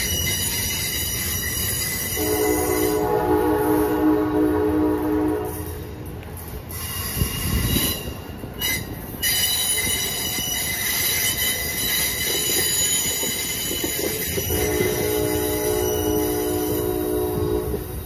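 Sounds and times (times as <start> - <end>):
high wheel squeal: 0.0 - 3.0, 6.7 - 17.4
train cars rumbling past: 0.0 - 18.0
train horn: 2.1 - 5.8, 14.4 - 18.0.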